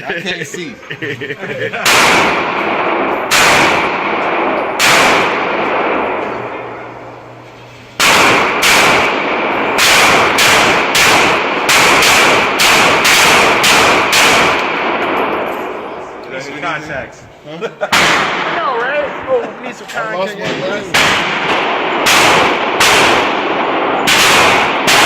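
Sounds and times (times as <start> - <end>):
pistol shots echoing: 1.8 - 7.1, 8.0 - 16.2, 17.9 - 18.7, 20.4 - 25.0.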